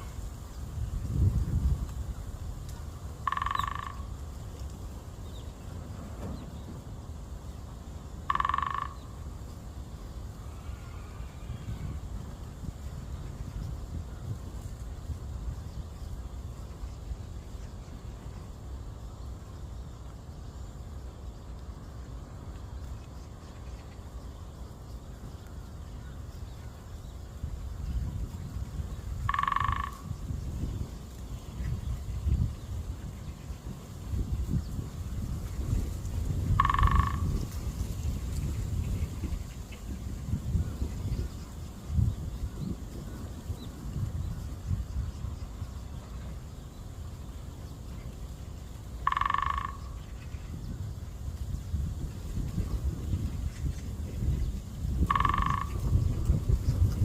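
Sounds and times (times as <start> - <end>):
wind rumbling on microphone: 0.0 - 57.0
woodpecker drumming on tree: 3.0 - 4.6, 8.1 - 9.3, 28.9 - 30.4, 36.2 - 37.8, 49.0 - 50.4, 55.0 - 57.0.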